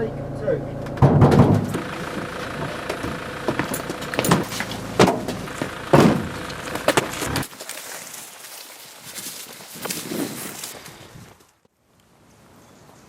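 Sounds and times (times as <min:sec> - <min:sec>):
car engine running: 0:00.0 - 0:07.6
sharp thumps: 0:00.8 - 0:07.5.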